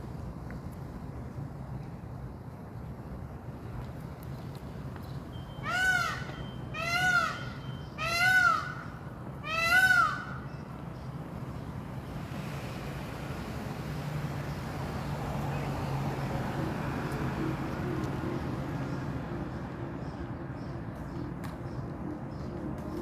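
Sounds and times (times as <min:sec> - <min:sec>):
peafowl wailing calls: 0:05.6 - 0:10.4.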